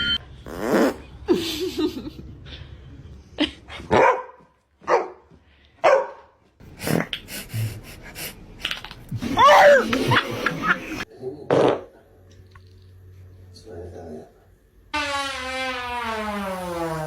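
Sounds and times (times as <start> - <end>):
dog barking: 3.9 - 5.2, 5.8 - 6.4.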